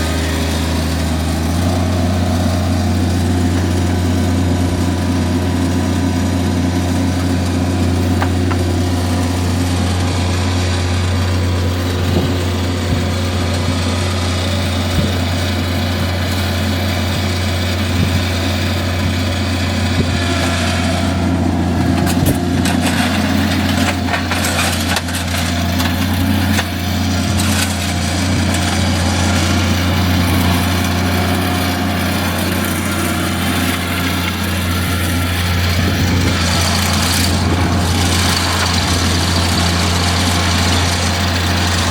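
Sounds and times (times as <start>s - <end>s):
engine humming: 0.0s - 41.9s
knocks and clattering: 21.8s - 28.8s.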